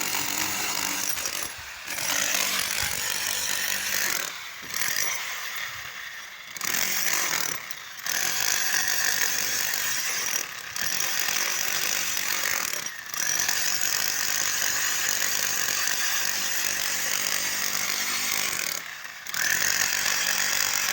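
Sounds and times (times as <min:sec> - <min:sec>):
high-pitched power tool running: 0:00.0 - 0:20.9.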